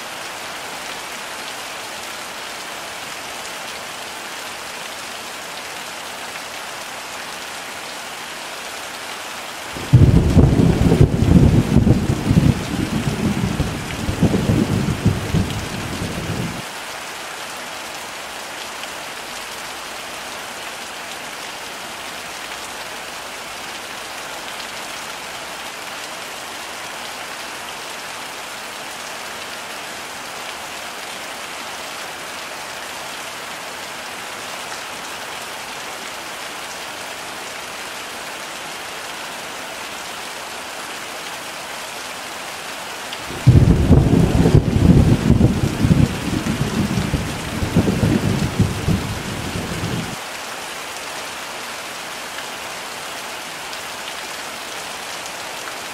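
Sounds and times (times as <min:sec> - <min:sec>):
heavy rain falling: 0:00.0 - 0:55.9
low thunder rumble: 0:09.8 - 0:16.6, 0:43.3 - 0:50.2.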